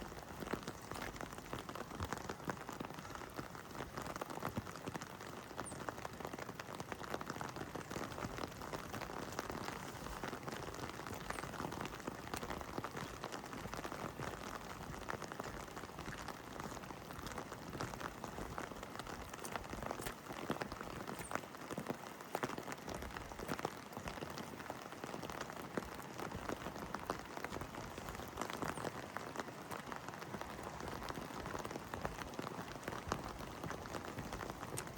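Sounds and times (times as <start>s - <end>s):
heavy rain on hard surfaces: 0.0s - 34.9s.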